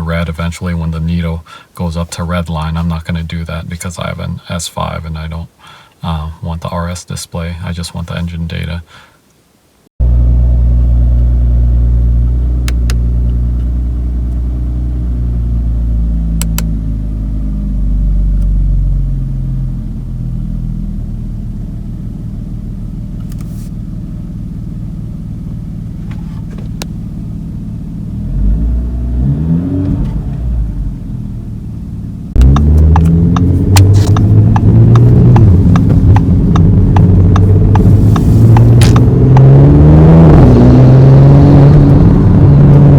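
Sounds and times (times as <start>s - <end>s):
car engine idling and revving: 10.0s - 42.9s.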